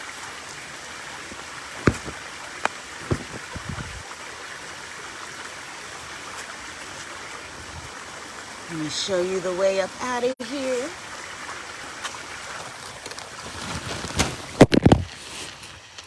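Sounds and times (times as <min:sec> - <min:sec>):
flowing stream: 0:00.0 - 0:16.0
close knocks and clatters: 0:01.3 - 0:04.0.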